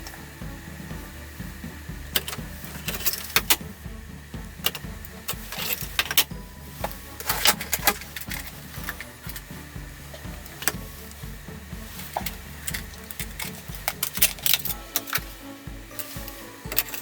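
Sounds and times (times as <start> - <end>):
steady low hum: 0.0 - 17.0
tools clicking and clattering: 2.1 - 3.7, 4.6 - 9.5, 10.1 - 11.3, 12.0 - 17.0.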